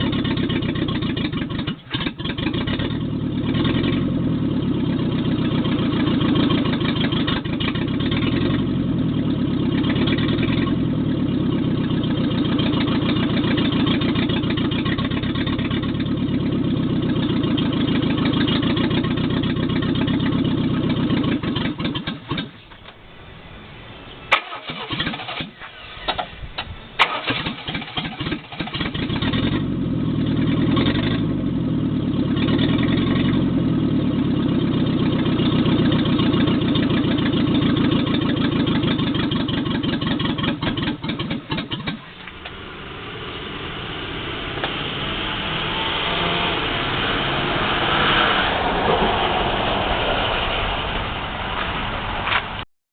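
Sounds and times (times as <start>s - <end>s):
engine sputtering with pops: 0.0s - 23.1s, 24.3s - 46.5s, 51.4s - 52.7s
car engine running loud: 0.0s - 52.6s.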